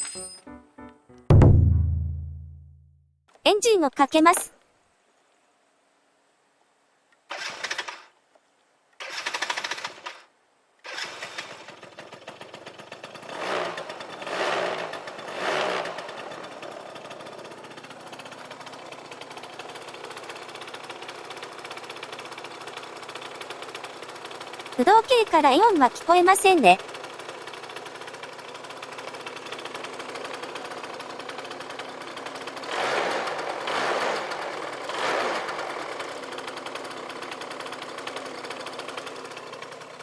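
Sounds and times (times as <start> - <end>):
scooter engine starting and idling: 7.3 - 8.1, 9.0 - 40.0
engine revving: 13.1 - 17.7, 32.2 - 39.3.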